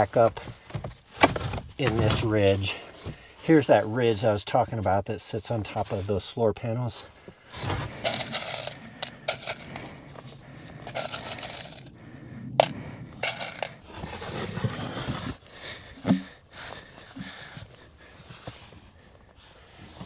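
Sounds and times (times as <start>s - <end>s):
wooden panels knocking and scraping: 0.7s - 2.4s, 16.0s - 16.3s.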